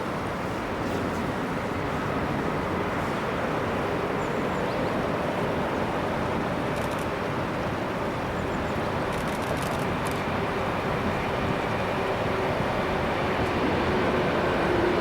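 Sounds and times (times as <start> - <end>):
train wheels rumbling on rails: 8.8 - 15.0.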